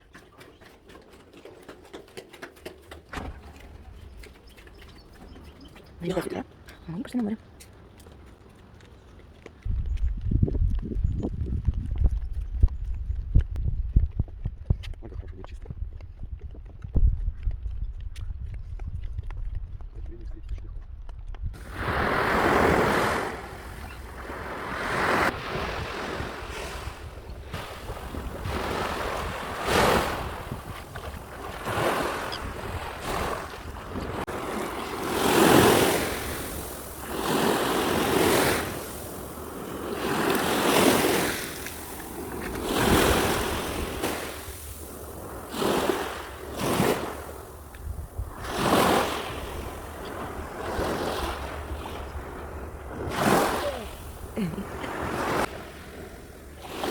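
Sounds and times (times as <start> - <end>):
wind rumble on microphone: 9.6 - 56.9
waves breaking ashore: 21.6 - 56.9.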